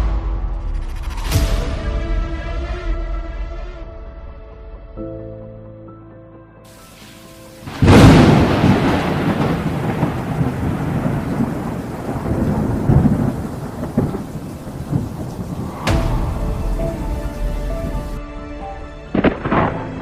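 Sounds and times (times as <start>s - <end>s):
thunder rumble: 6.8s - 20.0s
thunder crack: 7.1s - 20.0s.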